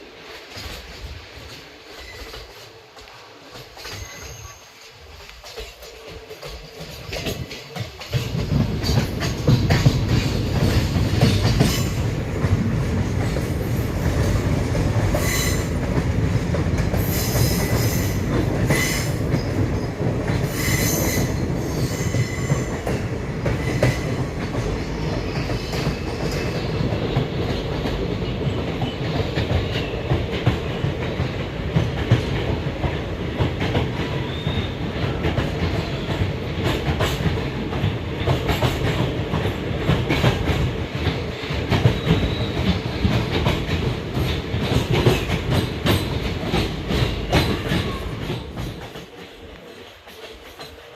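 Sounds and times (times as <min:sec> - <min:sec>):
train rumbling on track: 0:00.0 - 0:50.9
metallic wheel squeal: 0:03.8 - 0:04.9.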